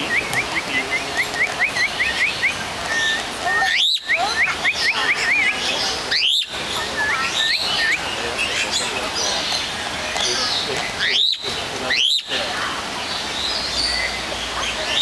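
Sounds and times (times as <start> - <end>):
bird whistling song: 0.0 - 9.7, 10.4 - 12.3.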